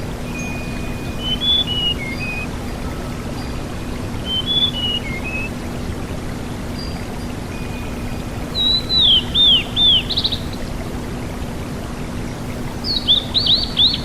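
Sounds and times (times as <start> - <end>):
steady hiss: 0.0 - 14.0
songbird whistling: 0.3 - 2.5, 4.3 - 5.5, 7.6 - 10.6.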